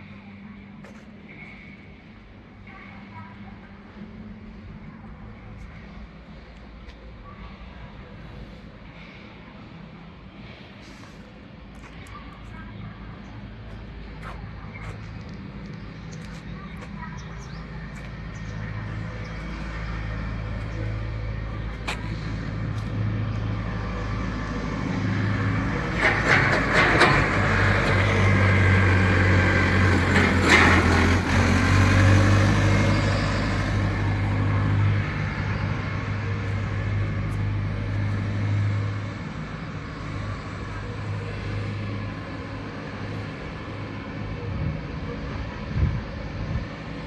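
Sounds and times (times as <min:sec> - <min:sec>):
truck engine running: 0:13.5 - 0:47.0
rushing noise with clatter: 0:18.1 - 0:45.0.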